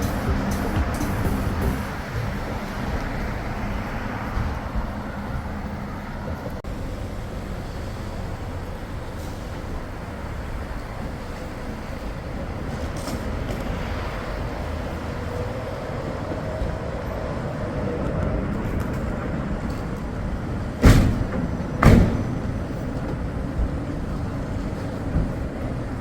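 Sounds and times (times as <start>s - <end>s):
loud sharp thumps: 0.0s - 2.5s, 20.8s - 22.7s
traffic noise: 0.0s - 26.0s.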